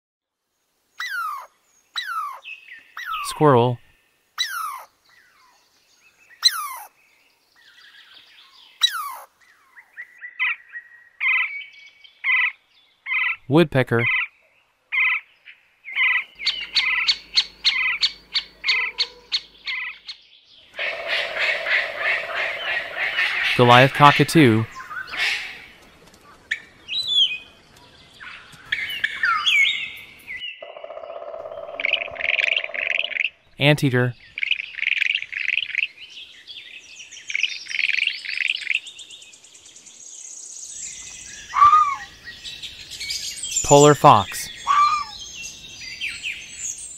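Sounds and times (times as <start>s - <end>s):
birds chirping: 0.6s - 46.9s
woodpecker calling: 1.0s - 3.4s, 4.4s - 7.0s, 7.6s - 25.8s, 28.2s - 39.0s, 40.8s - 46.9s
woodpecker tapping: 16.0s - 20.2s.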